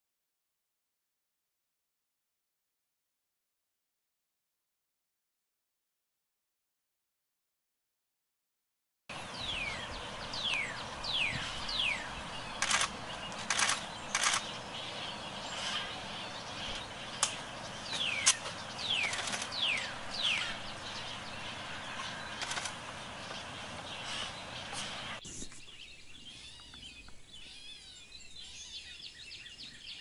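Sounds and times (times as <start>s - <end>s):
outdoor hiss: 9.1s - 25.6s
short harsh bird bursts: 11.2s - 17.4s, 23.9s - 25.7s.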